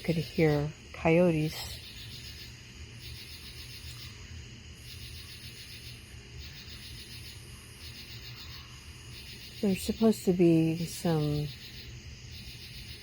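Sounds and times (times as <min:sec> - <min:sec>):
night insects buzzing: 0:00.0 - 0:13.0
steady low hum: 0:00.0 - 0:13.0.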